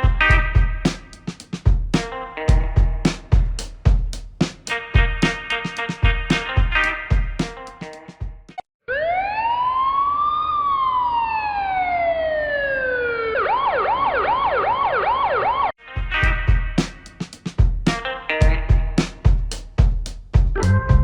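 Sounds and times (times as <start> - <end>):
electronic siren wailing and yelping: 8.9 - 15.7.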